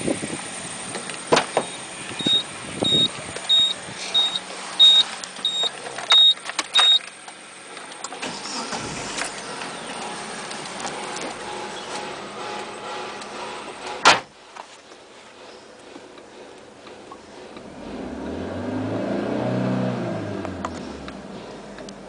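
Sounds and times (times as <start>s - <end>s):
steady background hum: 2.1s - 17.9s
short high electronic beeps: 2.2s - 7.0s.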